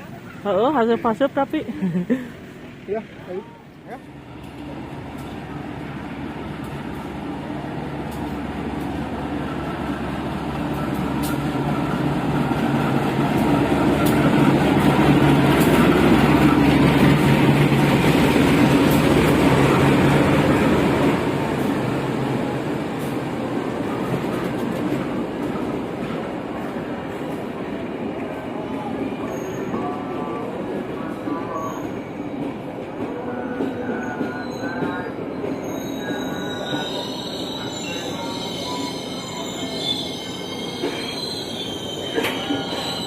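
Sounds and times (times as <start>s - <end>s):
diesel locomotive engine rumble: 0.0s - 43.0s
train wheel clicks on rails: 42.2s - 42.6s.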